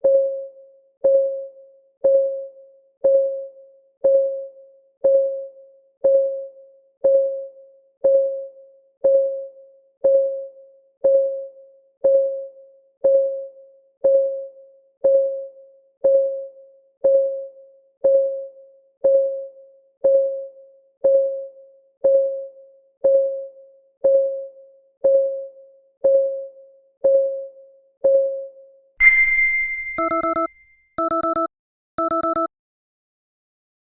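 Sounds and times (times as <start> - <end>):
bright chime: 29.0 - 30.6
short alarm beeps: 29.0 - 32.5
clock ticking: 30.0 - 32.5.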